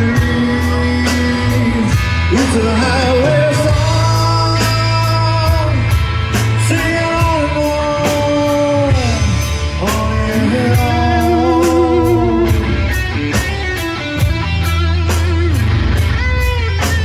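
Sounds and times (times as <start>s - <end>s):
person singing: 0.0s - 13.1s
bass and drums: 0.0s - 17.0s
electric guitar lead: 0.0s - 17.0s.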